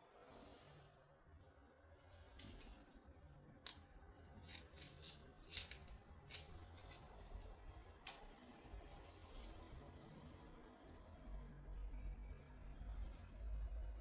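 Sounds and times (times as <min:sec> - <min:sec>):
scissors snipping: 0:04.4 - 0:09.6.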